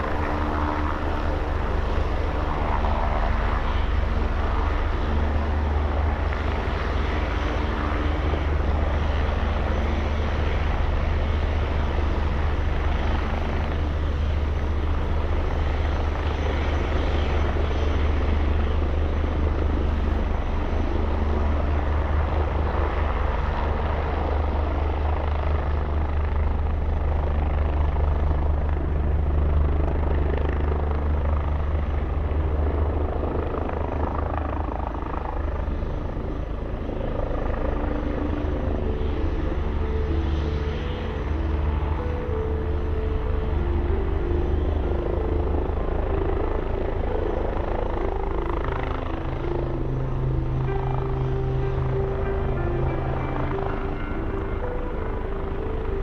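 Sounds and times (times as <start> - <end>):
helicopter rotor drone: 0.0 - 56.0
helicopter turbine noise: 0.0 - 56.0.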